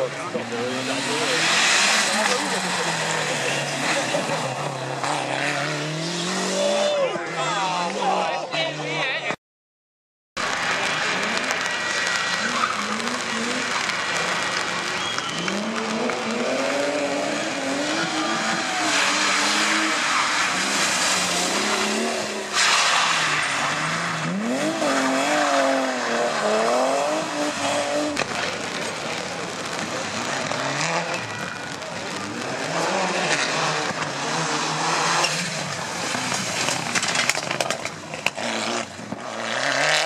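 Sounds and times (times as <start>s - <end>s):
rally car engine revving: 0.0s - 8.7s, 10.4s - 40.0s.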